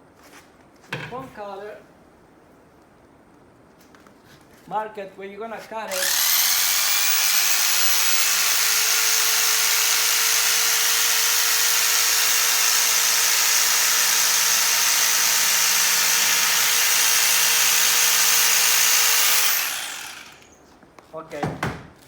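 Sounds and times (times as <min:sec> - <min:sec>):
electric foam cutter buzzing: 0:05.9 - 0:20.6.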